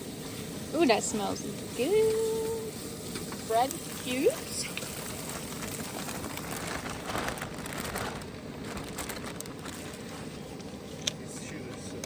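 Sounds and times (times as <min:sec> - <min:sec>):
food sizzling in a pan: 0:00.0 - 0:07.2.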